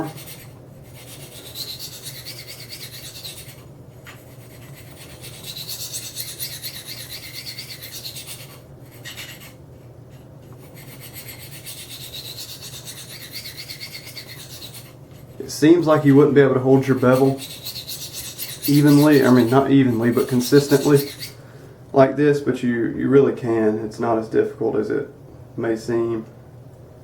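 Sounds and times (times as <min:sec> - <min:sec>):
knife rasping on ceramic stone: 0:00.0 - 0:16.0, 0:16.8 - 0:21.4.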